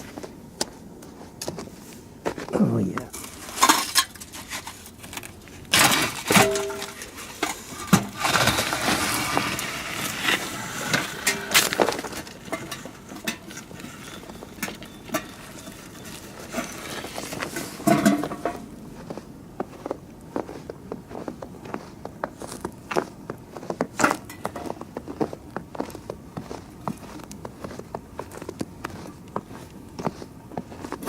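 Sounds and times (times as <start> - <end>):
footsteps crunching in snow: 0.0 - 31.0
ringing metal clank: 6.3 - 7.1.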